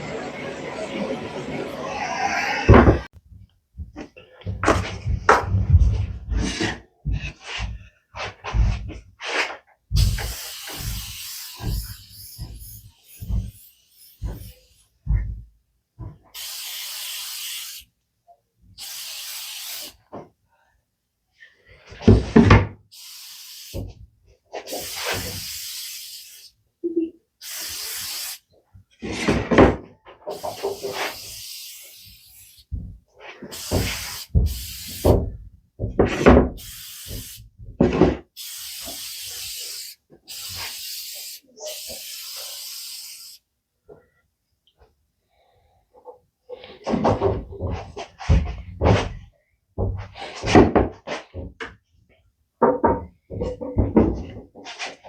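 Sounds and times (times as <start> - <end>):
aerosol spray bursts: 10.0 - 14.8, 16.3 - 17.9, 18.8 - 20.1, 22.9 - 26.6, 27.4 - 28.5, 30.3 - 32.8, 33.5 - 35.4, 36.2 - 43.5.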